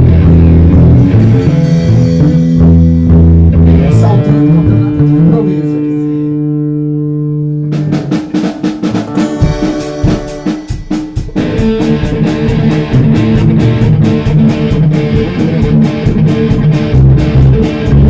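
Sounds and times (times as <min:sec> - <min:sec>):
live band playing: 0:00.0 - 0:05.5, 0:07.7 - 0:18.0
guitar chord ringing: 0:00.0 - 0:18.0
fast drum hits: 0:07.8 - 0:18.0.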